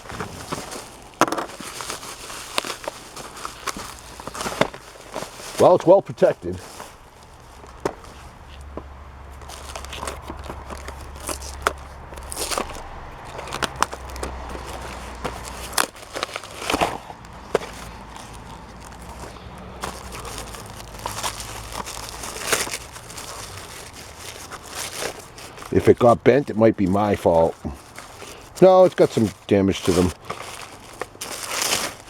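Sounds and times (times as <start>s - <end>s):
packing material crinkling: 0.0s - 32.0s.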